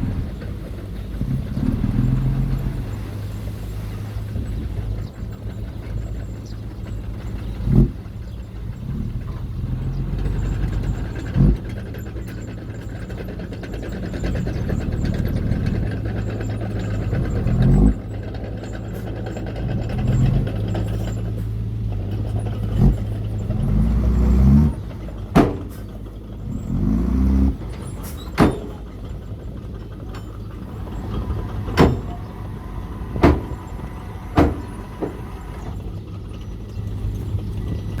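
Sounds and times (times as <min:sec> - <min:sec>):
model truck engine hum: 0:00.0 - 0:38.0.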